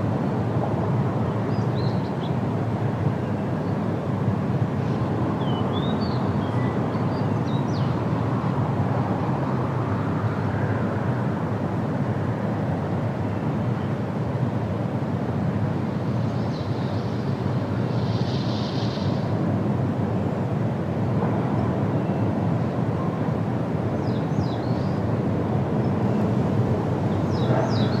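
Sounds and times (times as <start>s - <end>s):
wind through trees: 0.0s - 28.0s.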